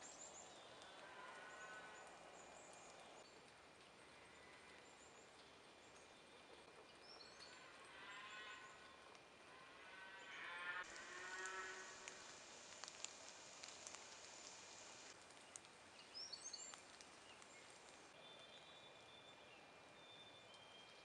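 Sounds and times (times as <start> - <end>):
soft steady hiss: 0.0 - 21.0
small birds chirping: 11.0 - 21.0.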